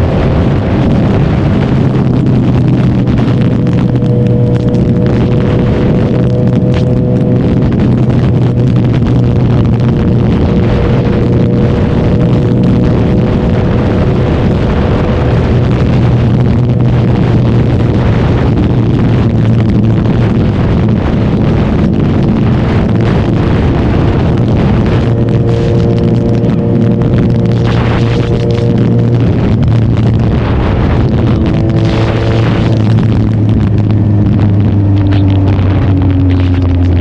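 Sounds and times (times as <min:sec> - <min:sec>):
motorcycle engine running: 0:00.0 - 0:37.0
wind rushing over microphone: 0:00.0 - 0:37.0.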